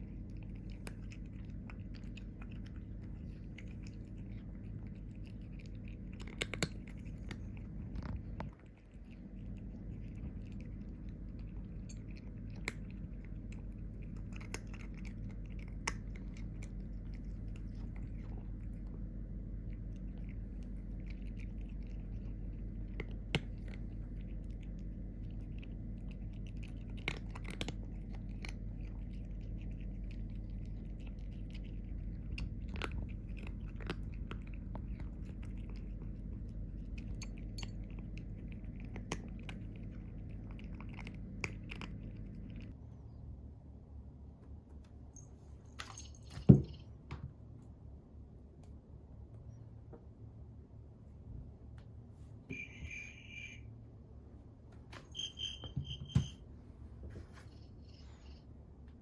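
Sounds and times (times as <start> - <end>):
cat chewing with crunches: 0.0 - 43.1
steady low hum: 0.0 - 59.0.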